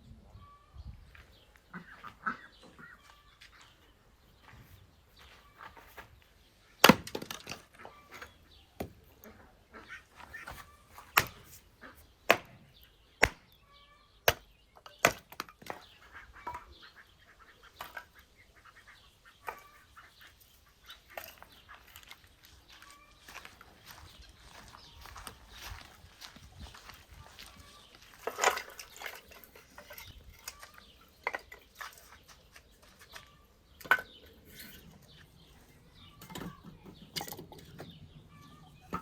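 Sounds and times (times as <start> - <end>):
sharp knocks and cracks: 6.8 - 7.8, 11.1 - 11.4, 12.3 - 12.6, 13.2 - 13.6, 14.3 - 16.7.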